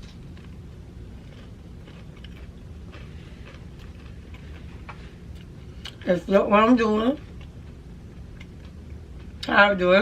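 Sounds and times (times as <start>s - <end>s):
faint crunches: 0.0s - 6.1s
person chewing food: 0.0s - 6.1s, 6.9s - 9.5s.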